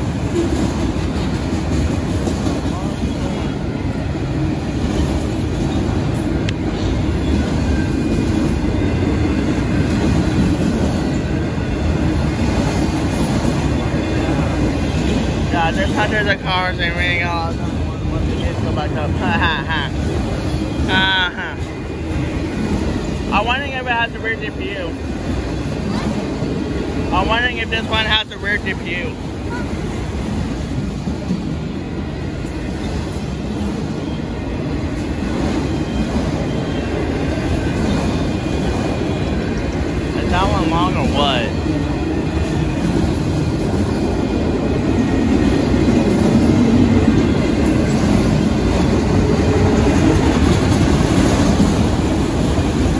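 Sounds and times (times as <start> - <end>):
freight train wheels rumbling: 0.0 - 52.9.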